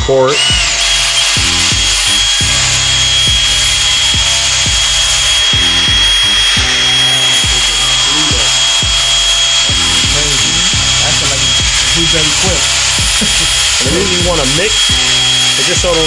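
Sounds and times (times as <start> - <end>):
background music with steady beat: 0.0 - 16.0
electric drill mixing paint: 0.0 - 16.0.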